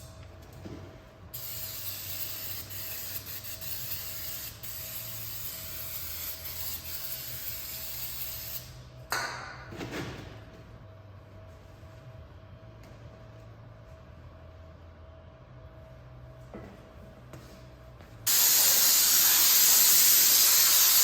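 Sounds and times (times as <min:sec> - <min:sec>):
hiss of spraying: 0:18.3 - 0:21.0.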